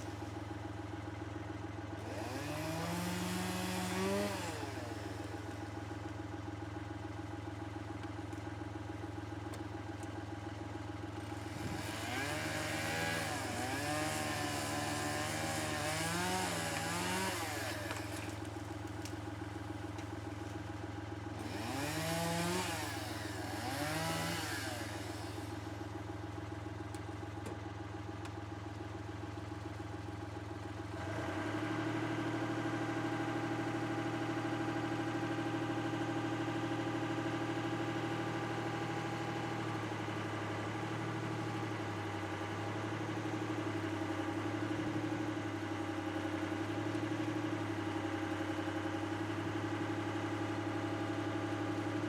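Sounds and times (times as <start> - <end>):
engine running: 0.0 - 52.0.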